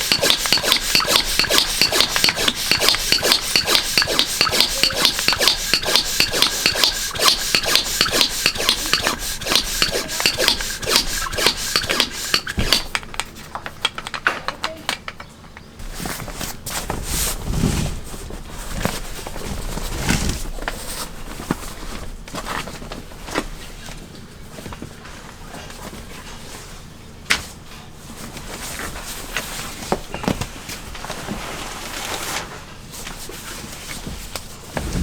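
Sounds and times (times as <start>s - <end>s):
rapid rasping strokes: 0.0s - 12.9s
rubbing and handling sounds: 0.0s - 14.9s, 15.8s - 35.0s.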